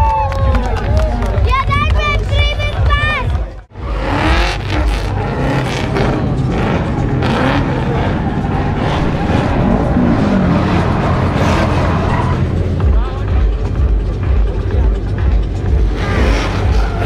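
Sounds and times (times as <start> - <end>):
car engine revving: 3.5 - 17.0.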